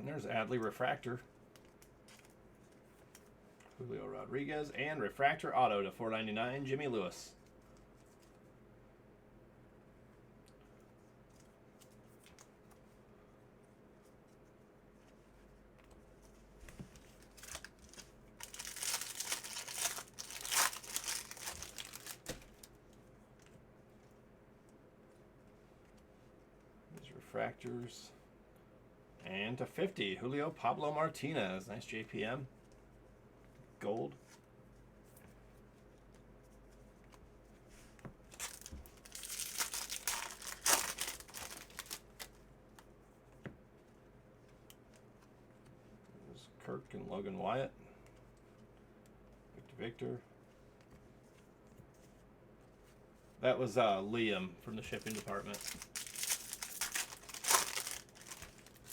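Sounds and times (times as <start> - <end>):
foil wrapper crinkling and tearing: 17.1 - 22.7, 38.3 - 42.4, 54.8 - 58.9.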